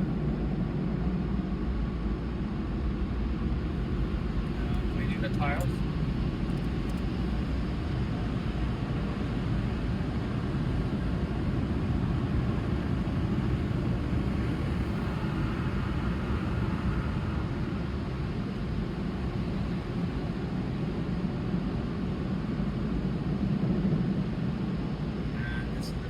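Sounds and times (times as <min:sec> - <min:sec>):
faint whine: 0:03.1 - 0:26.0
car wash machinery rumbling: 0:03.6 - 0:20.2.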